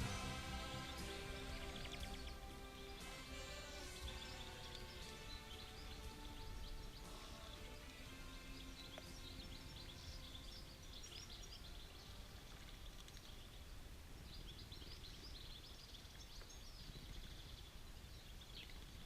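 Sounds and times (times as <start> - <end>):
low steady rumble: 0.0 - 8.0
small birds chirping: 0.0 - 19.0.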